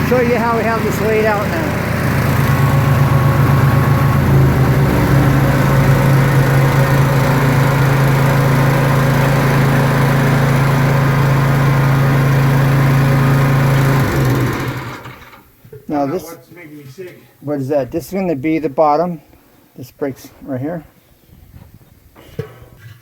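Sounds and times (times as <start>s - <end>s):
motor humming loudly: 0.0s - 15.2s.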